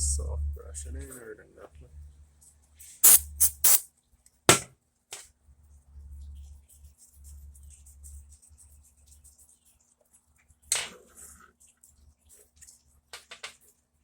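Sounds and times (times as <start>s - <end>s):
soft brush scrubbing circuit board: 3.0s - 3.8s.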